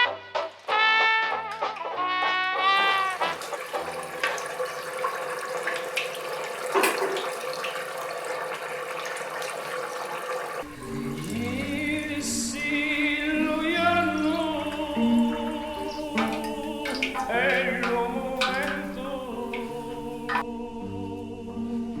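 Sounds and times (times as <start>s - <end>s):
music with singing voice: 10.7s - 22.0s.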